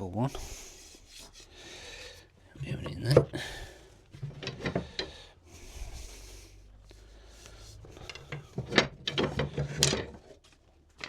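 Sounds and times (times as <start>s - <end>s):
wood rubbing on wood: 0.0s - 10.4s.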